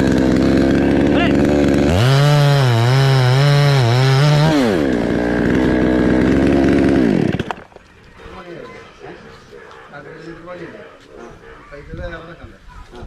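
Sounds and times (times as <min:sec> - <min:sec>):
chainsaw running: 0:00.0 - 0:07.9.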